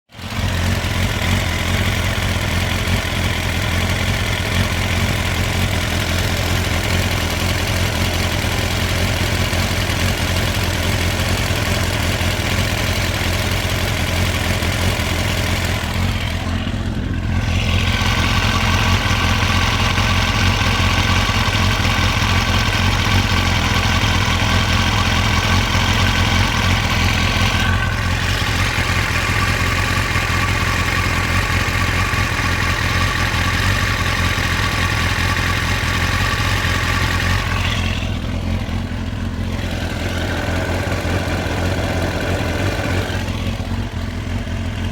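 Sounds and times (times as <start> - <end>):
motorcycle engine idling: 0.1 - 44.9.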